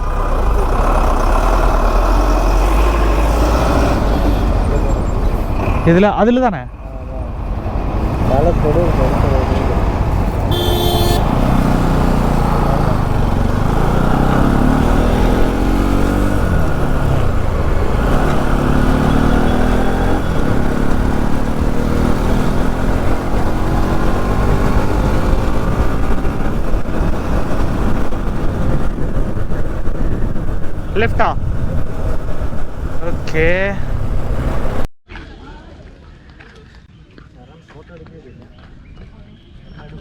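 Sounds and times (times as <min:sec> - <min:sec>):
motorcycle engine accelerating: 0:00.0 - 0:34.9
wind noise on microphone: 0:19.5 - 0:34.9.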